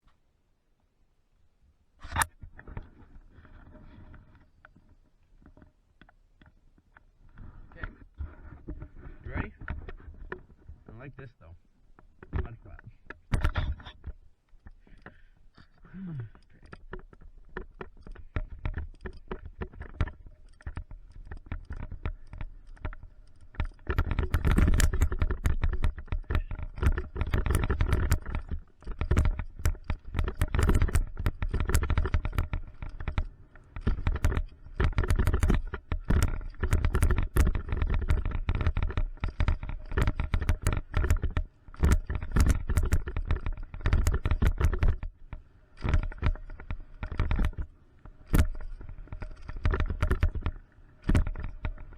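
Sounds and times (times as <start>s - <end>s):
bike chain and frame rattling: 13.3s - 51.9s
bike tyres rumbling on dirt: 17.2s - 51.9s.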